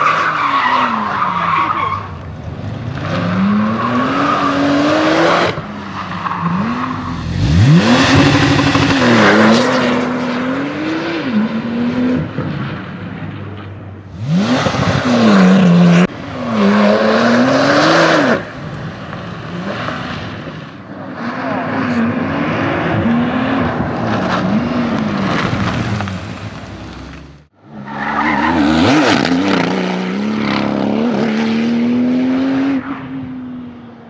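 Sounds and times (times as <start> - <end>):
car engine revving hard: 6.5 - 12.3, 14.2 - 18.5.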